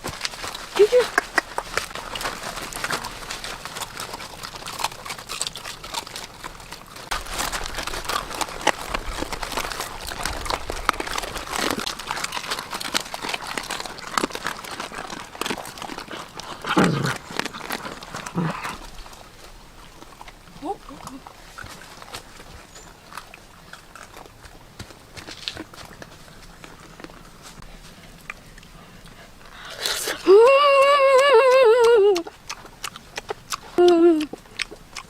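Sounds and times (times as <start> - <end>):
rustling and crackling: 0.0 - 31.4.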